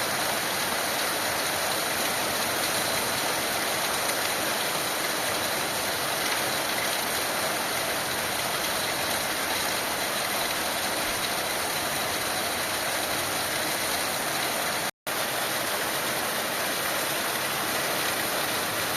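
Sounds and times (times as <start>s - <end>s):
heavy rain falling: 0.0s - 18.9s.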